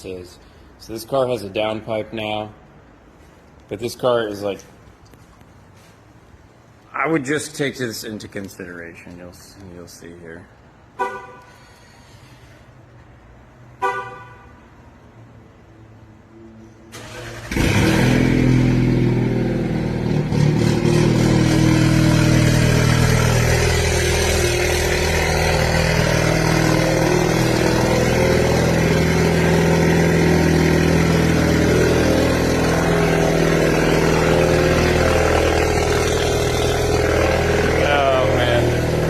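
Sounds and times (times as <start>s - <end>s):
car engine cold start and fast idle: 16.9s - 19.3s.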